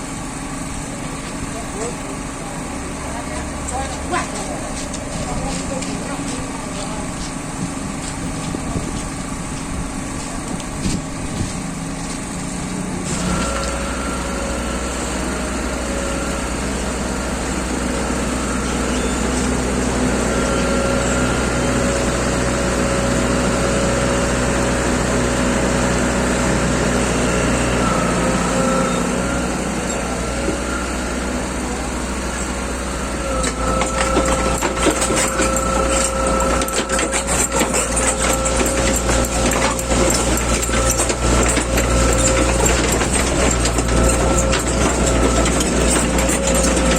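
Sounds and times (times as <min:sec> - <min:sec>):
small engine running: 0:08.0 - 0:46.9
rapid rattling clatter: 0:33.7 - 0:46.9.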